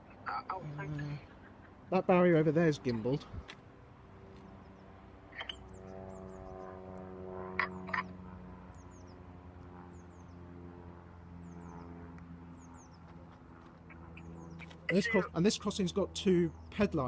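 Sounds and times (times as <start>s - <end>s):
small birds chirping: 0.0s - 2.2s, 4.3s - 6.8s, 7.6s - 10.5s, 11.2s - 17.0s
low droning hum: 0.0s - 17.0s.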